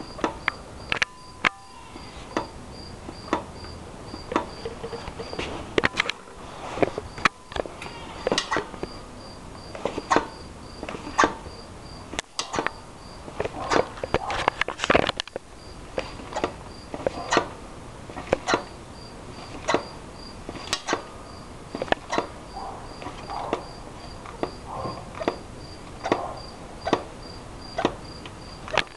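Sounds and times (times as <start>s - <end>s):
bike shock clacking and knocking: 4.1s - 6.2s, 20.6s - 21.1s, 21.7s - 22.4s, 26.0s - 27.1s.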